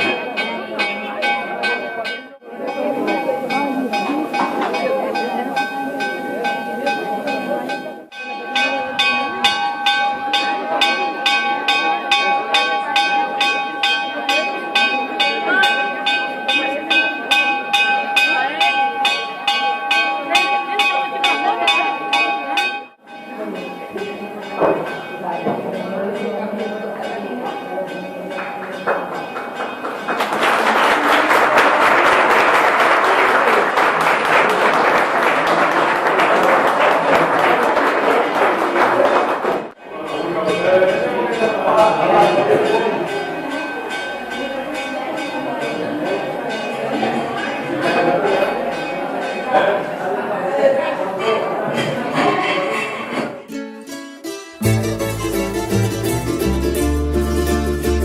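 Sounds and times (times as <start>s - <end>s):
chapel bell ringing rapidly: 0.0s - 39.1s, 39.9s - 50.3s
crowd murmuring: 0.0s - 58.0s
crowd applauding: 28.9s - 39.8s.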